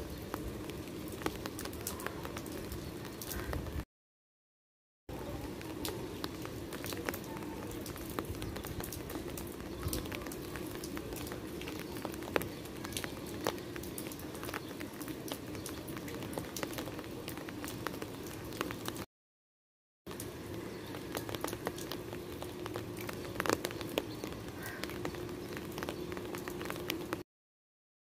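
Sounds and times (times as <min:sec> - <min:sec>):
rain drops tapping on stone: 0:00.0 - 0:03.8, 0:05.1 - 0:19.1, 0:20.1 - 0:27.2.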